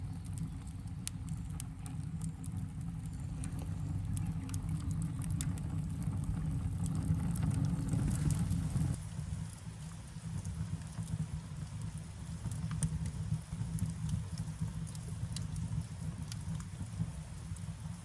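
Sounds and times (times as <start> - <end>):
fire roaring in a stove: 0.0 - 18.0
wood fire crackling: 0.0 - 18.0.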